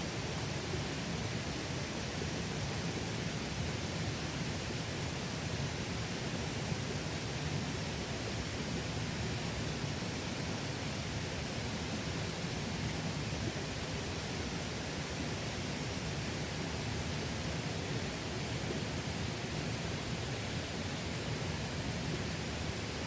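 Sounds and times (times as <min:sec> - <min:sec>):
stream flowing: 0:00.1 - 0:23.0.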